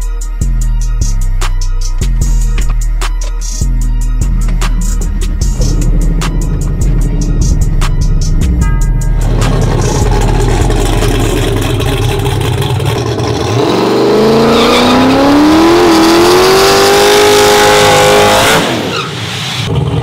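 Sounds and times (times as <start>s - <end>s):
truck engine accelerating hard: 4.2s - 20.0s.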